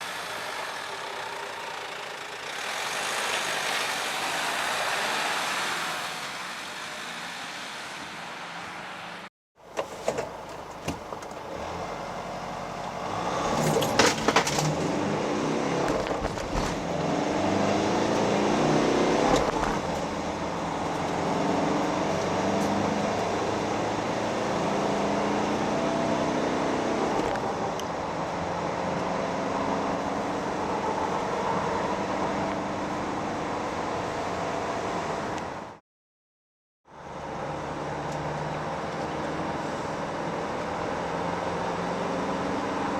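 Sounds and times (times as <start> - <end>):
diesel engine accelerating: 0.0 - 9.3, 11.5 - 35.8
road noise inside van: 0.0 - 35.8, 36.9 - 42.9.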